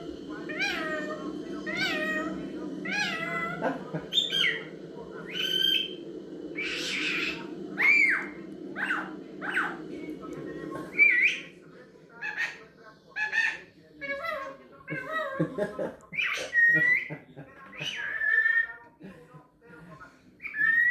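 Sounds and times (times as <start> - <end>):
parrot meow-like calls: 0.5 - 4.7, 6.6 - 9.8
parrot squawk: 0.5 - 4.7, 6.6 - 9.8, 12.2 - 12.6, 13.2 - 15.4, 16.1 - 17.1, 17.7 - 18.8, 20.4 - 20.9.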